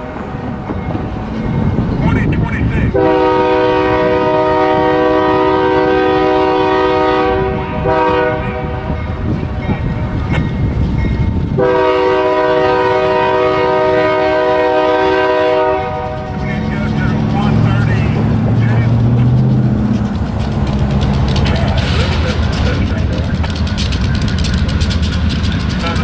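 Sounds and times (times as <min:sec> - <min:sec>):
passing train rumble: 0:00.0 - 0:26.0
locomotive air horn blasts: 0:02.9 - 0:09.7, 0:11.6 - 0:19.0, 0:25.8 - 0:26.0.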